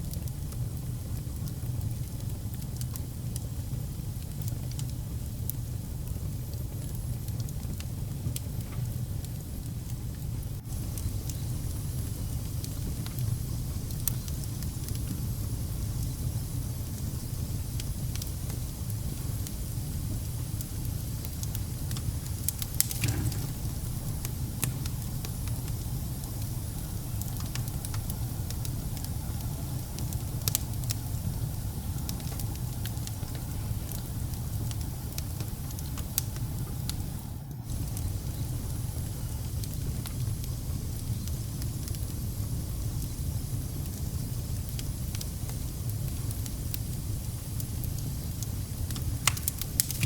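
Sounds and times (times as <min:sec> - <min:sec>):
wood fire crackling and popping: 0:00.0 - 0:50.0.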